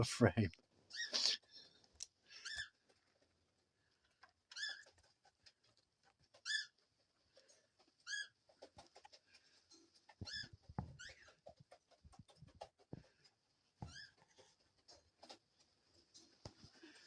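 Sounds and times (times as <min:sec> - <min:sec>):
bird chirping: 0:00.9 - 0:01.7, 0:06.3 - 0:06.8, 0:08.0 - 0:12.6
light scratching and tapping: 0:01.0 - 0:17.0.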